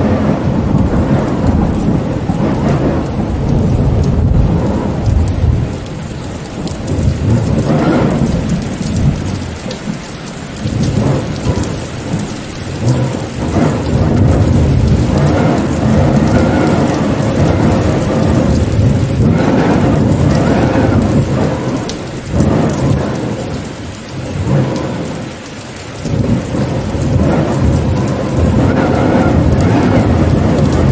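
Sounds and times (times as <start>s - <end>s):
deep rumble: 0.0s - 25.2s, 26.0s - 30.9s
steady rain: 0.0s - 30.9s.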